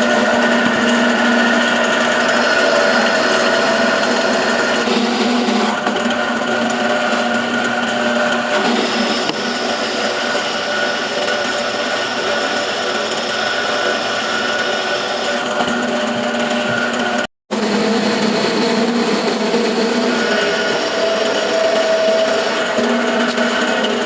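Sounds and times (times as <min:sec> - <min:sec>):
electric power tool whining: 0:00.0 - 0:24.0.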